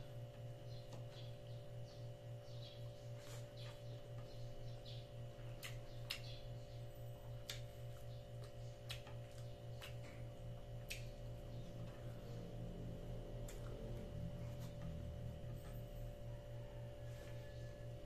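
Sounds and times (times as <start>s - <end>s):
low electrical hum: 0.0s - 18.0s
person chewing with wet smacks: 5.4s - 12.2s, 13.3s - 15.8s.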